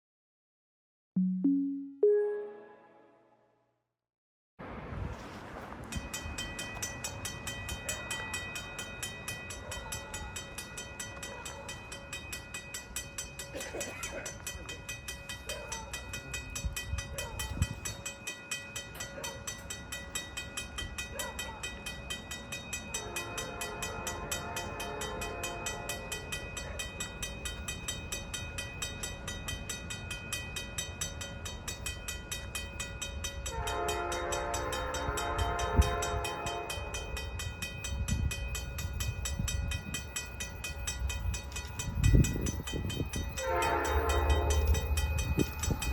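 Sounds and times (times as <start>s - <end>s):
level-crossing bell ringing: 6.0s - 13.6s, 14.2s - 45.9s
train air horn blast: 23.0s - 25.8s, 33.5s - 37.0s, 43.4s - 44.9s.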